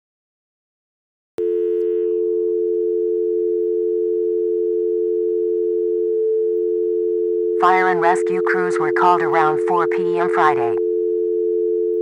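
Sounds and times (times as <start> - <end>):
telephone dial tone: 7.6 - 10.8.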